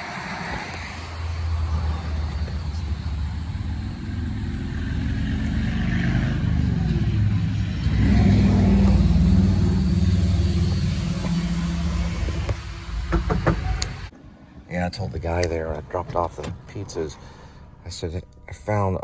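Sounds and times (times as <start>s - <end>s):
car engine: 0.0s - 14.1s
road noise: 0.0s - 19.0s.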